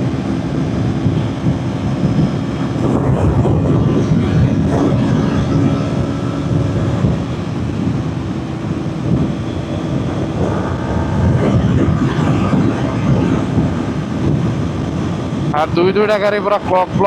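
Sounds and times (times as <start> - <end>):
wind rush over microphone: 0.0 - 8.1, 9.0 - 15.7
motorcycle engine revving high: 2.7 - 7.6, 10.2 - 15.0.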